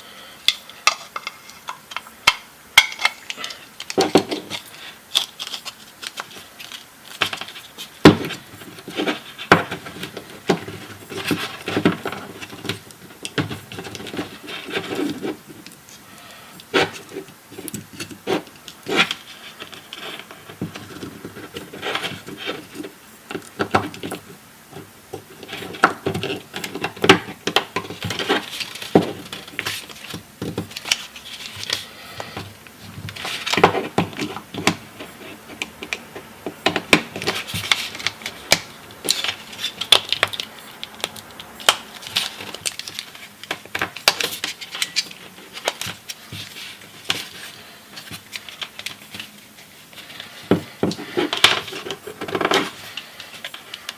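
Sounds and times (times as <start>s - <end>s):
small hard objects clicking and rattling: 0.5s - 16.0s, 35.6s - 49.3s.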